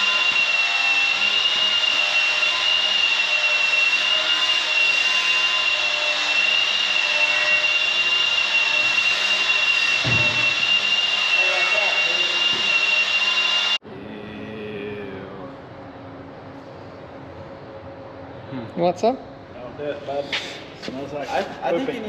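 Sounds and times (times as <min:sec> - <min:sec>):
machine motor whining: 0:00.0 - 0:13.8.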